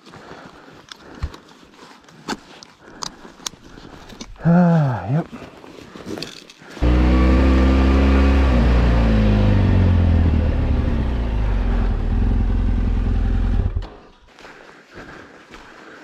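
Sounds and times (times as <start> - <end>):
motorcycle engine running: 6.8 - 14.1.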